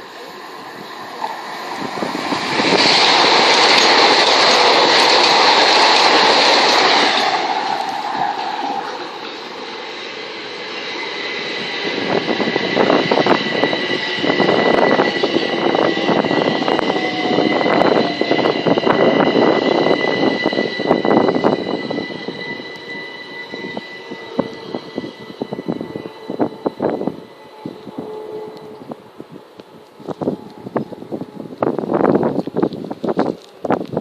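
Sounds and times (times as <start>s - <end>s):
steady high whine: 0.0s - 34.0s
train wheels clicking over rail joints: 1.0s - 10.6s.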